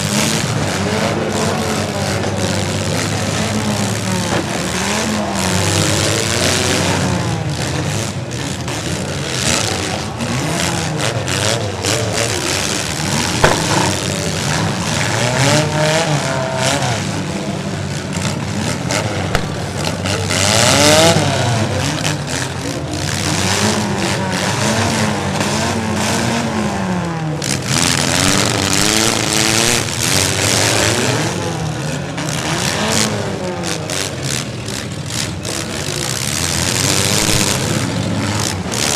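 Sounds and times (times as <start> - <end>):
car engines revving: 0.0 - 38.9
sharp bang of car hit: 13.4 - 14.2.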